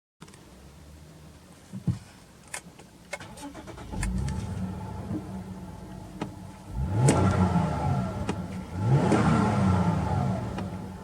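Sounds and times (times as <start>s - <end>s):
car engine idling and revving: 3.2s - 11.0s.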